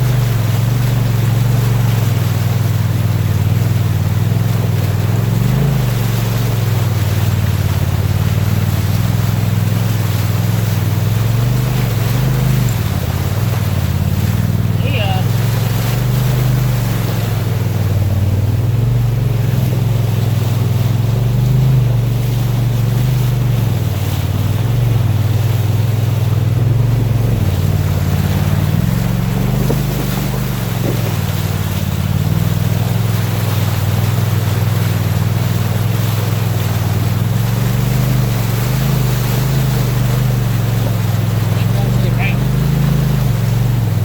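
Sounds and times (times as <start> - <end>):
engine running: 0.0 - 44.0
water rushing: 0.0 - 44.0
wind noise: 26.8 - 31.4.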